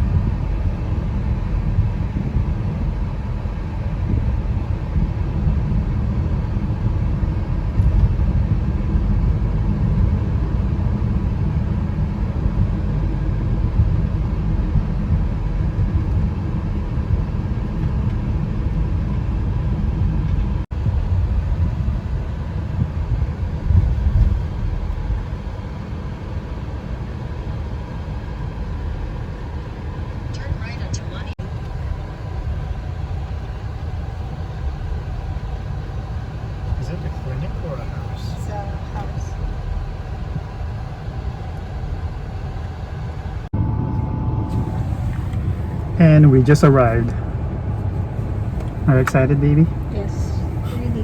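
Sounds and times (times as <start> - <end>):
car road and engine rumble: 0.0 - 51.0.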